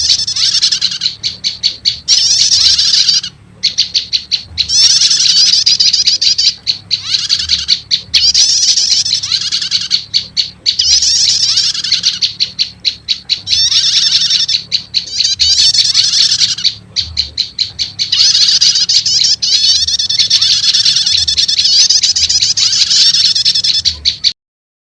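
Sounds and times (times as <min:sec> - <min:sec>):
high bird twittering: 0:00.0 - 0:24.4
rapid dry bird ticks: 0:00.0 - 0:24.4.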